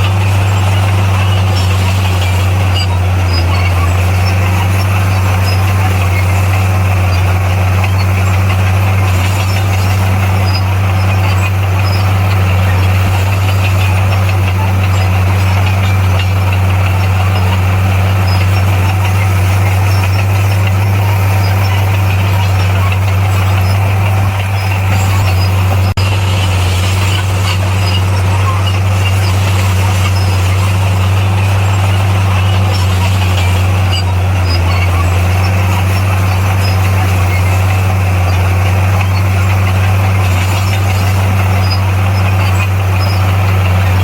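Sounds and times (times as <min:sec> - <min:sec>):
diesel engine droning: 0:00.0 - 0:44.0.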